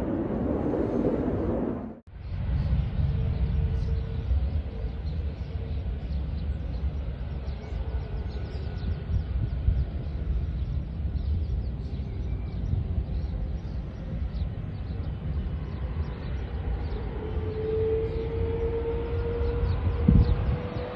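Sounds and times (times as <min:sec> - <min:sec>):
distant jet engine rumble: 0:00.0 - 0:20.9.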